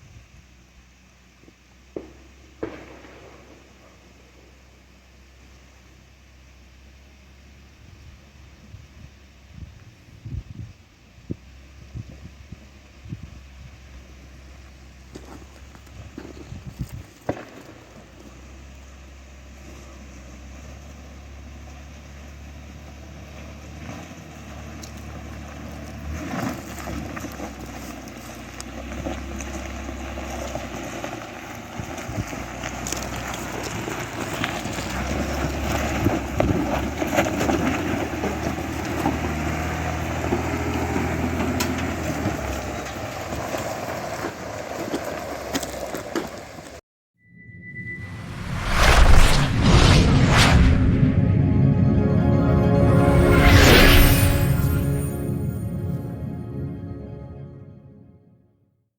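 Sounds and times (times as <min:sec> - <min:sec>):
tires crunching over rocky dirt: 0:12.5 - 0:46.8.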